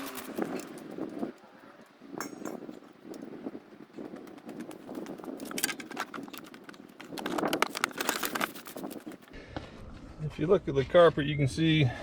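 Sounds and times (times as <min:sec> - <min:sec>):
objects rustling and clicking: 0:00.0 - 0:09.4.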